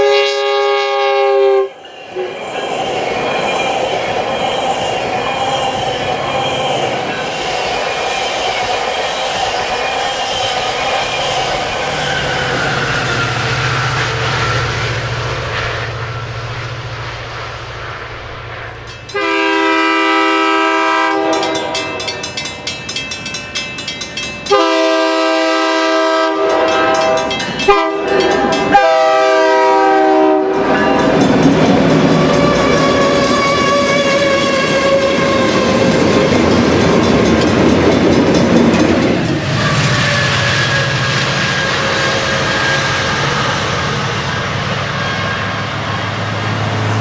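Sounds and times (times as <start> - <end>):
train air horn: 0.0 - 2.3, 19.1 - 22.4, 24.5 - 31.0, 31.9 - 36.5, 39.3 - 43.1
train rolling on rails: 0.0 - 47.0.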